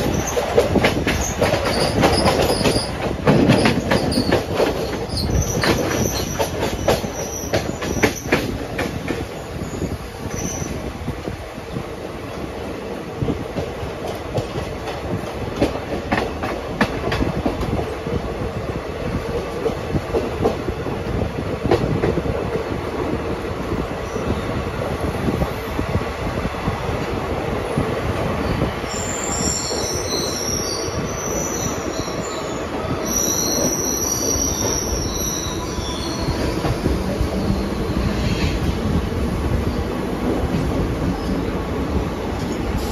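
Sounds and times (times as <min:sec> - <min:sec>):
train wheels rumbling: 0:00.0 - 0:42.9
high-pitched wheel squeal: 0:28.9 - 0:38.5.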